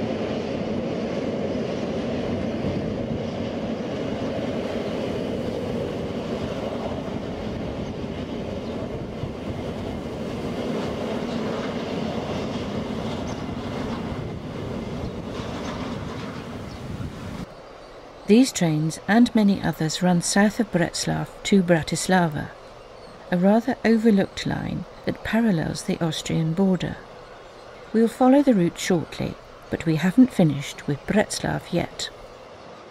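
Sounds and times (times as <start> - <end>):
train wheels rumbling on rails: 0.0 - 21.2.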